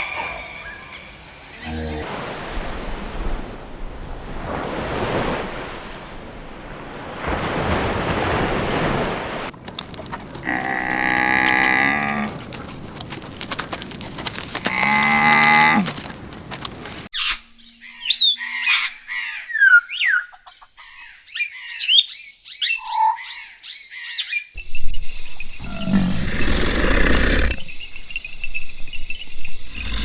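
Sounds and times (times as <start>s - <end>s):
cattle mooing: 10.4s - 12.4s.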